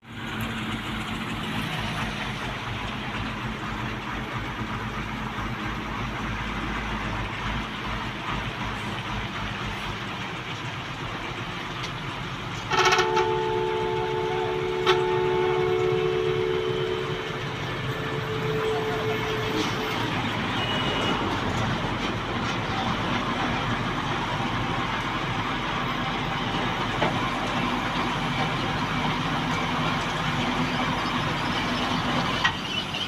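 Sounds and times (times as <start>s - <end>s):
road noise: 0.0s - 33.0s
vehicle engine: 0.0s - 33.0s
vehicle horn long note: 12.7s - 21.3s.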